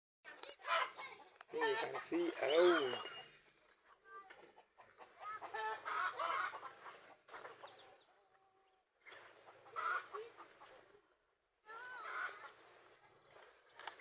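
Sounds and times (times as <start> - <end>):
chickens clucking: 0.3 - 3.4, 4.2 - 8.1, 9.1 - 11.0, 12.0 - 14.0.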